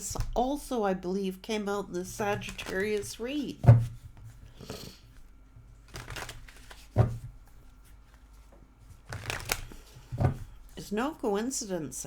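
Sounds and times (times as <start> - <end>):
cards rustling: 2.4 - 3.4, 5.8 - 10.1.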